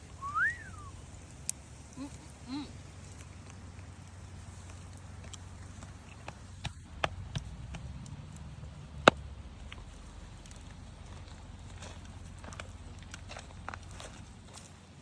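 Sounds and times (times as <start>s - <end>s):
low steady rumble: 0.0s - 15.0s
sharp clicks and knocks: 5.2s - 10.6s.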